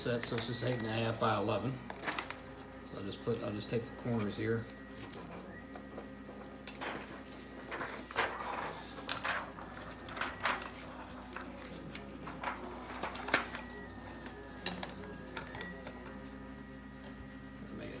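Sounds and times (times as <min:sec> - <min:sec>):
plastic film crackling: 0:06.6 - 0:15.9.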